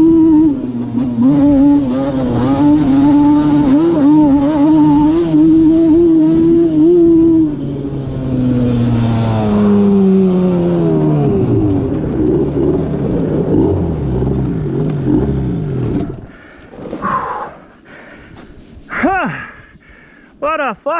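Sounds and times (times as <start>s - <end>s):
two-stroke engine revving: 0.0s - 16.3s.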